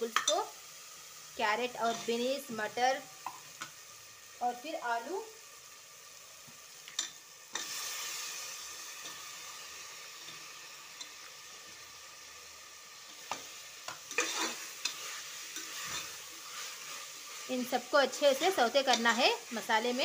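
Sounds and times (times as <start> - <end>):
potatoes sizzling in hot oil: 0.0 - 20.0
metal spoon scraping pot: 14.1 - 17.0.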